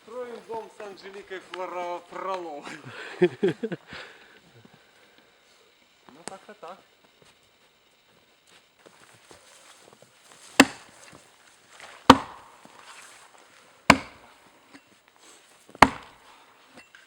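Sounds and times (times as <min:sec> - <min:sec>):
axe chopping wood: 0:10.4 - 0:11.2, 0:11.8 - 0:12.9, 0:13.9 - 0:14.4, 0:15.7 - 0:16.9.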